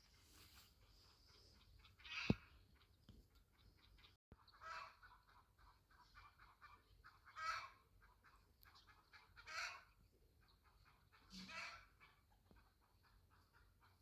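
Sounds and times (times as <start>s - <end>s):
fowl honking calls: 6.1s - 7.8s, 10.7s - 12.2s.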